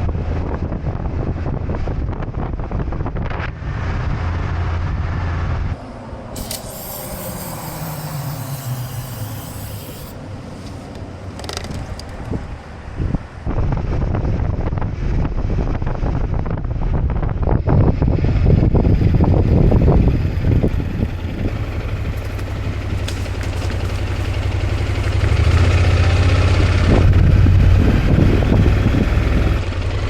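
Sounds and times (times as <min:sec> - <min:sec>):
wind buffeting: 0:00.0 - 0:29.7
motorcycle road rumble: 0:00.0 - 0:30.0
vehicle passing by: 0:18.3 - 0:30.0.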